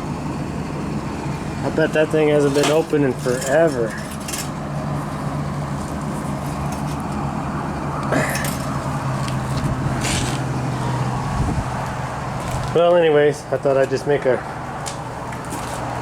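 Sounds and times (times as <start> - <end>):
steady low hum: 0.0 - 16.0
tool bag handling: 8.2 - 10.5.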